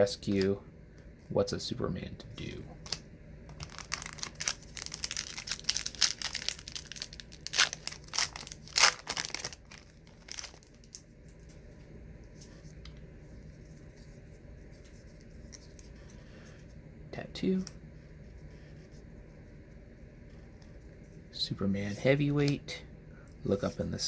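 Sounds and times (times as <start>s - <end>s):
wax paper pack tearing and crinkling: 2.8s - 11.0s.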